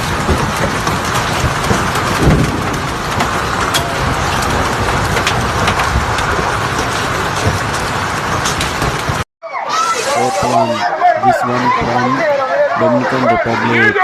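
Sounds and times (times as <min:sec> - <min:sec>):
hail striking hard surfaces: 0:00.1 - 0:09.2.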